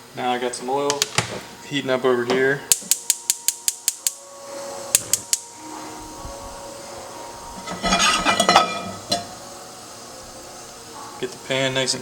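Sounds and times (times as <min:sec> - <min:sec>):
stove igniter clicking: 0:02.7 - 0:04.2.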